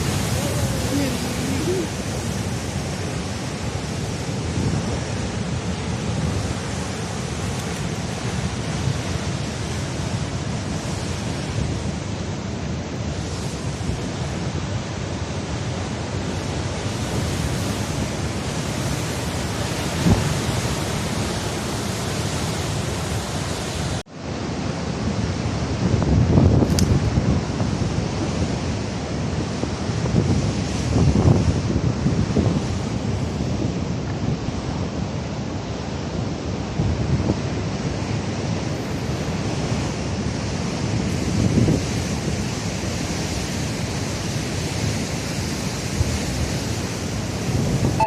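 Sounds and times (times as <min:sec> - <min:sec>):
wind buffeting microphone: 0:00.0 - 0:12.4, 0:25.1 - 0:35.2, 0:36.1 - 0:48.0
surf against cliffs: 0:00.0 - 0:48.0.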